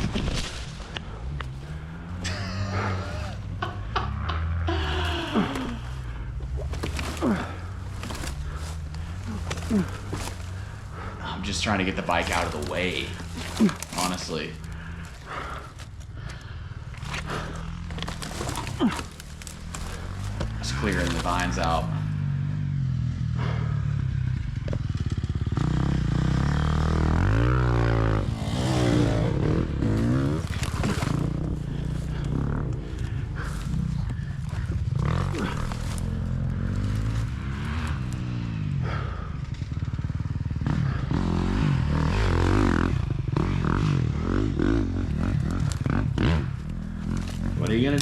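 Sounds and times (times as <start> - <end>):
dirt bike engine idling: 0.0 - 48.0
knocks and scrapes: 17.0 - 21.8.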